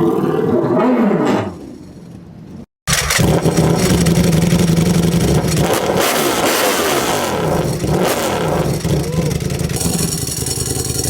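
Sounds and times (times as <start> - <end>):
loud motorcycle engine running: 2.9 - 11.0.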